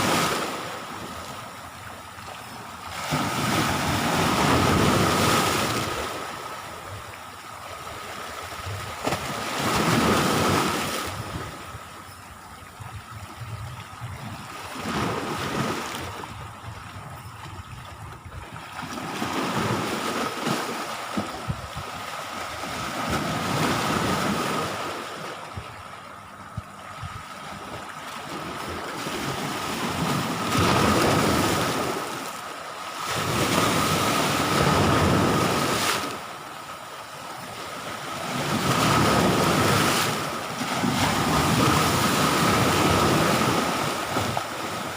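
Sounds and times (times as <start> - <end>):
sea waves washing onto shore: 0.0 - 11.9
wind buffeting microphone: 8.0 - 32.1.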